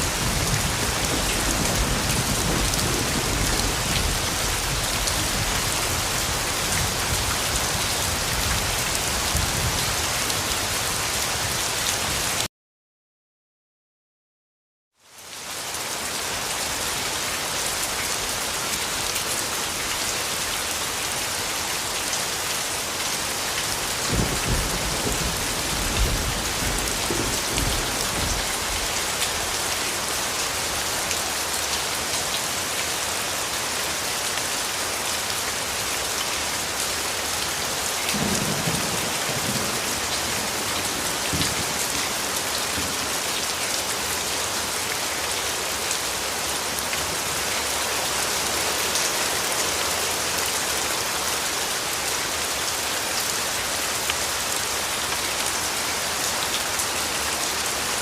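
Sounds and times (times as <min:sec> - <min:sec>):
low rumbles of thunder: 0:00.1 - 0:05.7, 0:24.1 - 0:28.9.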